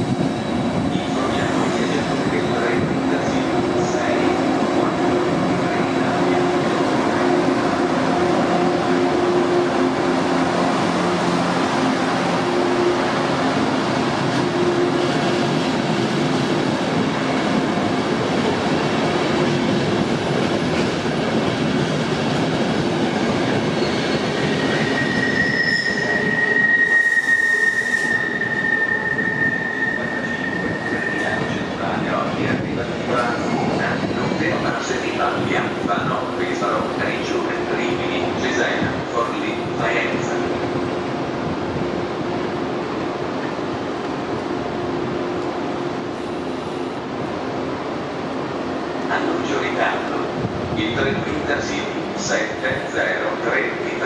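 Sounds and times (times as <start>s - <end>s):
train rumbling through station: 0.0s - 54.0s
high-pitched wheel squeal: 23.8s - 31.6s.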